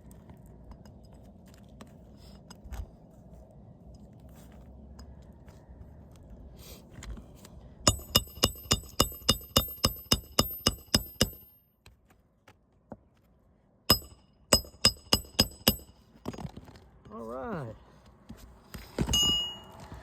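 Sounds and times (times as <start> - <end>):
hammer striking nails: 7.9 - 11.5, 13.9 - 16.6.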